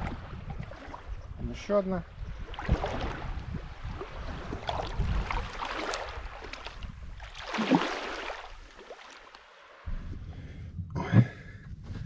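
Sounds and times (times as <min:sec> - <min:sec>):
wind rumbling on microphone: 0:00.0 - 0:08.8, 0:09.8 - 0:12.0
small waves lapping and splashing: 0:00.0 - 0:09.9
loud splash: 0:07.3 - 0:09.2.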